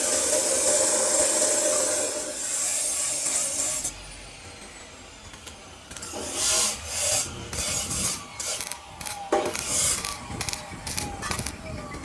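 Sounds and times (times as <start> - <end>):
hand tool scraping a surface: 0.0 - 4.0, 6.0 - 8.8, 9.4 - 10.1.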